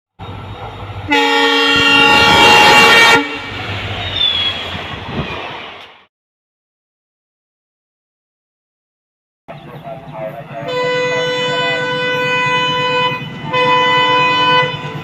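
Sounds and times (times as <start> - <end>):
low rumble of locomotive engine: 0.2 - 6.0, 9.5 - 15.0
locomotive horn blast: 1.0 - 4.7, 10.4 - 15.0.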